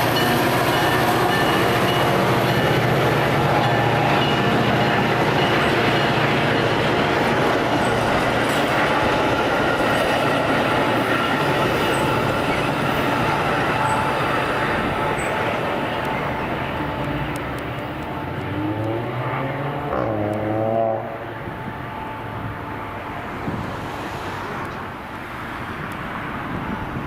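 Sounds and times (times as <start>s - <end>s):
train wheels on rails: 0.0s - 20.7s, 21.3s - 27.0s
rising engine note: 17.4s - 21.4s.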